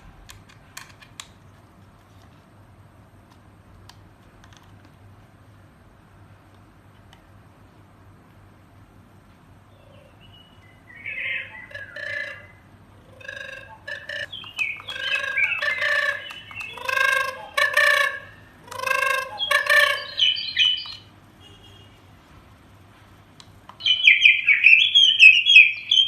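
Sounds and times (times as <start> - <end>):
fowl calls from loudspeaker: 11.0 - 20.8.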